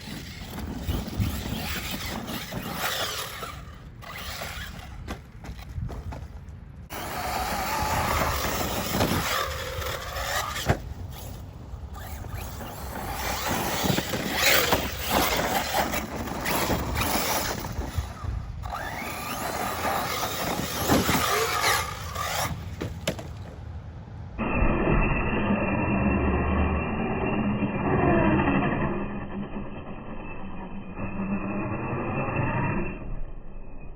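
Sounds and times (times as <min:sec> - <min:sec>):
electric motors whining: 0:00.0 - 0:23.6, 0:24.4 - 0:33.7
tyres crunching on gravel: 0:00.0 - 0:23.7.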